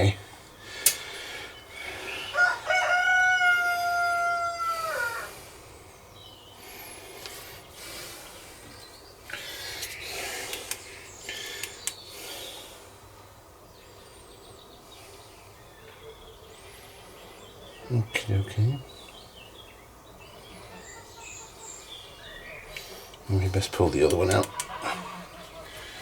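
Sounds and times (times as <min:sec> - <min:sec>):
faint bird chirps: 0:01.4 - 0:26.0
rooster crowing: 0:02.1 - 0:05.4, 0:24.6 - 0:26.0
light clicks: 0:08.8 - 0:12.1, 0:24.0 - 0:24.8.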